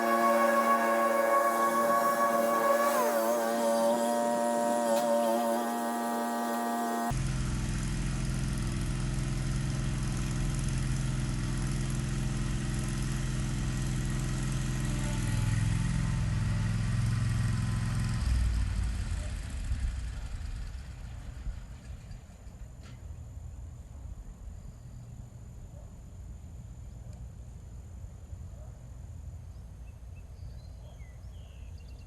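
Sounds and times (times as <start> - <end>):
engine idling: 0.0 - 22.8.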